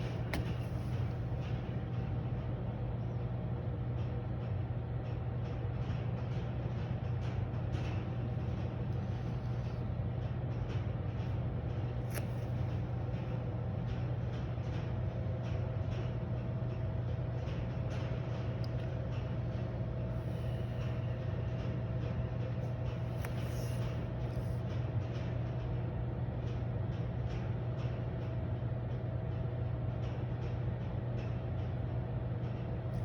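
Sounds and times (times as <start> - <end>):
cooling fans humming: 0.0 - 2.9, 7.4 - 26.2.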